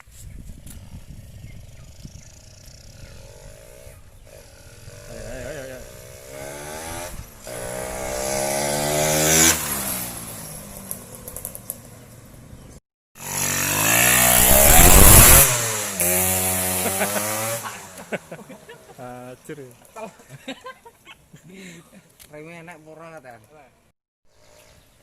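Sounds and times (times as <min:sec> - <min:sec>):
two-stroke engine revving: 0:02.1 - 0:11.4, 0:13.2 - 0:18.4.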